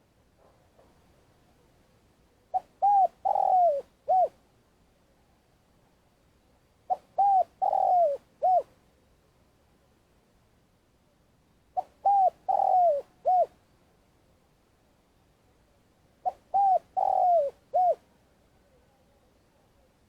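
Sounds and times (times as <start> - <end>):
dove cooing: 2.5 - 4.4, 6.9 - 8.7, 11.8 - 13.6, 16.2 - 18.0.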